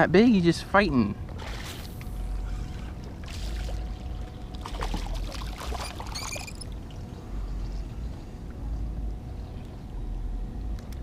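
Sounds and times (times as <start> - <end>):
low steady rumble: 0.0 - 11.0
water splashing against boat: 1.3 - 7.0.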